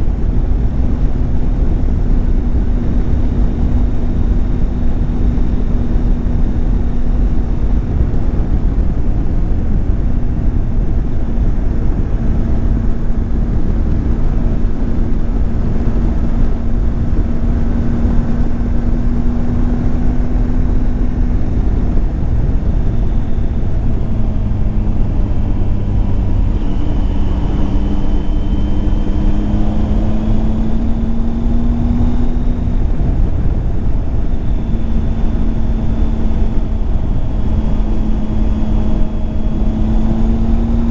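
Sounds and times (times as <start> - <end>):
low rumble: 0.0 - 40.9
motorcycle engine running: 0.0 - 40.9.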